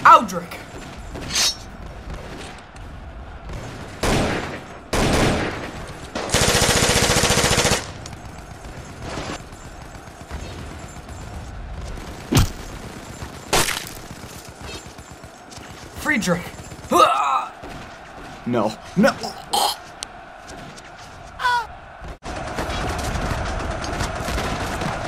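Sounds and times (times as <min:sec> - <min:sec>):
gunshots: 0:00.0 - 0:19.7, 0:21.7 - 0:25.0
machine-gun burst: 0:03.6 - 0:15.4, 0:22.2 - 0:25.0.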